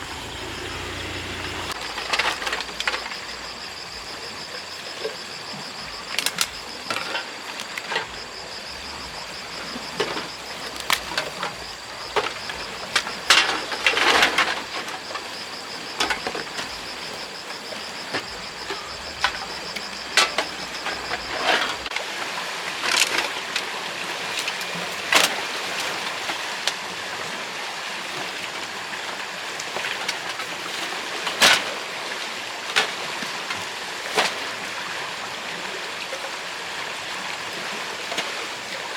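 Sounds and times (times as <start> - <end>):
rushing background hiss: 0.0 - 21.9
knocks and clicks of handled objects: 10.0 - 11.5.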